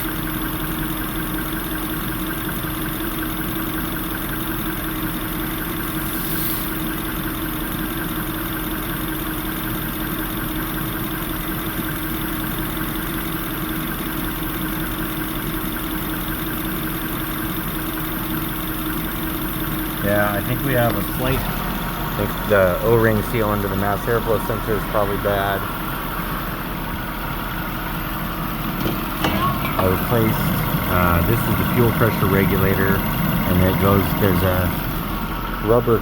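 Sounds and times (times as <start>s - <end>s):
car engine idling: 0.0s - 36.0s
brief high hiss: 6.1s - 6.8s.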